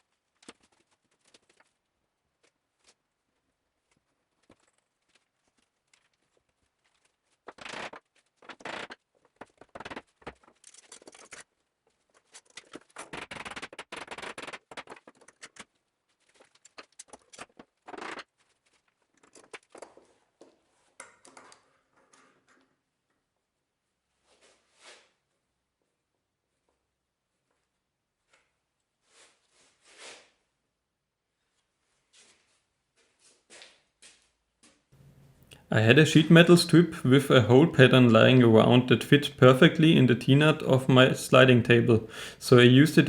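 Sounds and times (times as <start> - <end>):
scraping and rustling: 3.8 - 13.4.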